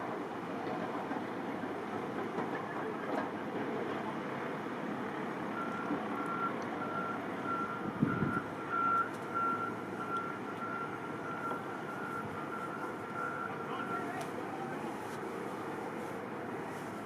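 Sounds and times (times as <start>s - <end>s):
engine and road noise: 0.0s - 17.0s
reversing alarm beeping: 5.6s - 14.2s.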